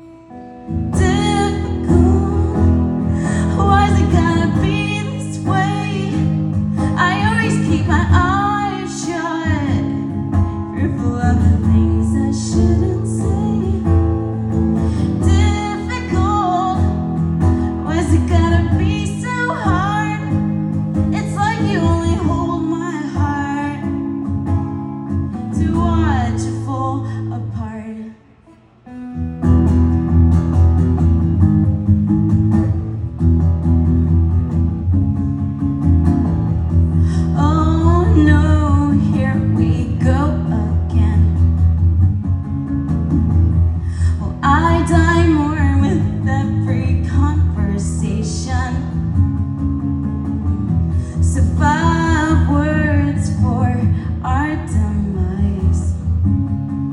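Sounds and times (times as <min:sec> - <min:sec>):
woman singing: 0:00.7 - 0:24.4, 0:25.1 - 0:28.2, 0:37.0 - 0:41.9, 0:43.9 - 0:49.2, 0:51.1 - 0:56.3.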